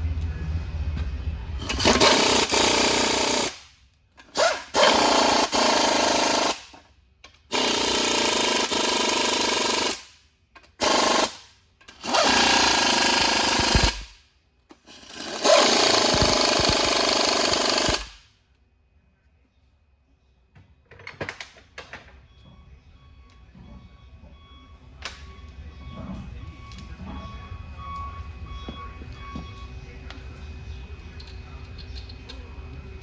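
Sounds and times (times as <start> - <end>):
impact wrench running: 1.6 - 10.1, 10.7 - 14.1, 14.7 - 18.3.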